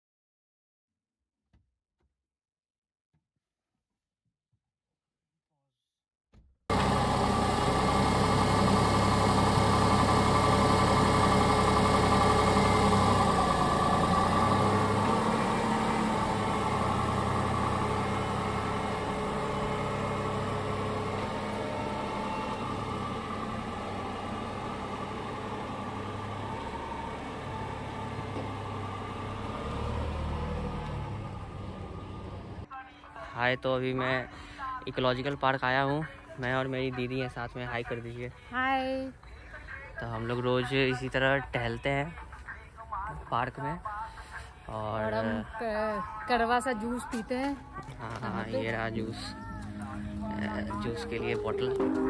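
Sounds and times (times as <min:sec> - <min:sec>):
car engine running: 0:06.7 - 0:32.7, 0:46.1 - 0:52.0.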